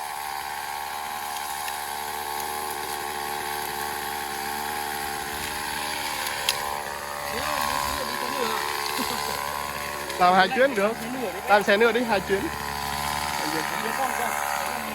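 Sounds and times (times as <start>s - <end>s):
small engine running: 0.0s - 14.9s.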